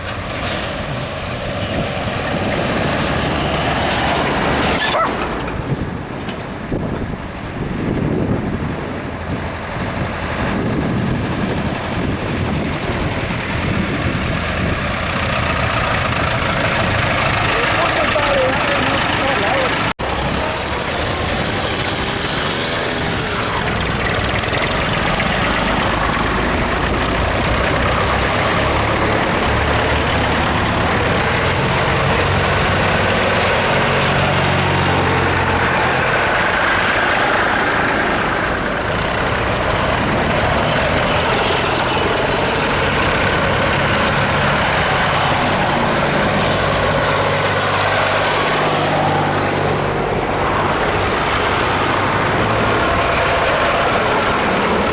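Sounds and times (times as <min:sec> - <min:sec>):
tractor and car engines running: 0:00.0 - 0:54.9
vehicles passing close: 0:00.0 - 0:54.9.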